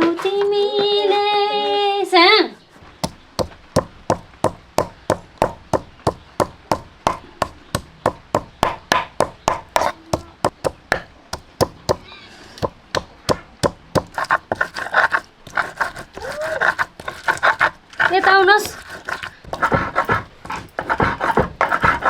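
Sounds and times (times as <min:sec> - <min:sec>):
knife chopping on cutting board: 0:02.8 - 0:22.0.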